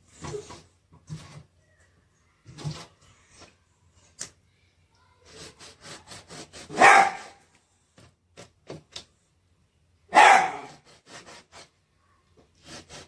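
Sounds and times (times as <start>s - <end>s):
dog barking: 6.7s - 7.4s, 10.1s - 10.8s
dog yipping: 6.7s - 7.4s, 10.1s - 10.7s.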